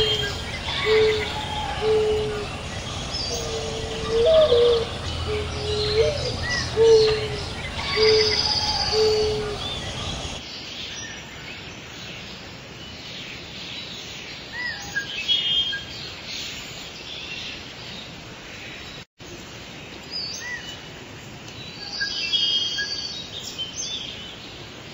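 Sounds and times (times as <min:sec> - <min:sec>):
bird trills: 0:00.0 - 0:10.4
songbirds chirping: 0:00.0 - 0:24.9
steady outdoor hiss: 0:00.0 - 0:24.9.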